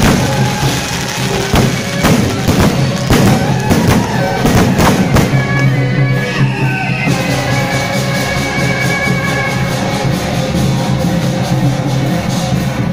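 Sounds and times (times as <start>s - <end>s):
fireworks bursting: 0.0s - 6.7s
loud music with held notes: 0.0s - 12.9s.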